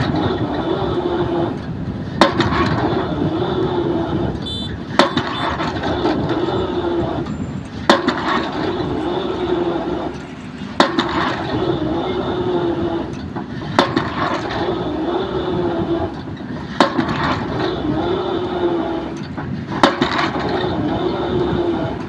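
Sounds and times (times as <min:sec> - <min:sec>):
excavator engine humming: 0:00.0 - 0:22.0
drop hammer striking pile: 0:05.0 - 0:05.8.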